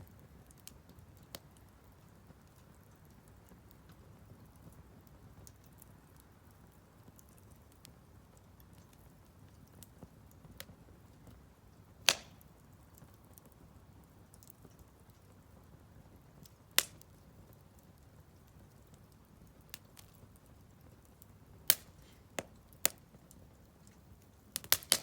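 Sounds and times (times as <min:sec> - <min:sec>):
firewood crackling: 0:00.0 - 0:25.0
low steady rumble of fire: 0:00.0 - 0:25.0
loud fire pops: 0:12.0 - 0:13.2, 0:16.4 - 0:17.1, 0:21.6 - 0:23.2, 0:24.5 - 0:25.0.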